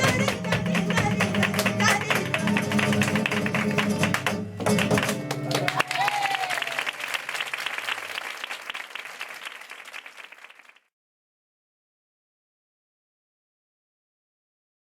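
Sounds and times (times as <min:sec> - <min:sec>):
flamenco guitar and percussion: 0:00.0 - 0:06.3
audience applause: 0:00.0 - 0:10.9
person shouting: 0:05.8 - 0:06.8.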